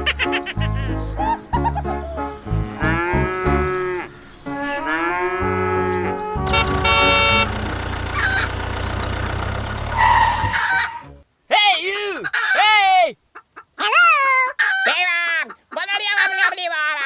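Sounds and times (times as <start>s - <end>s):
background music with bass line: 0.0s - 7.8s
cow mooing: 2.8s - 7.7s.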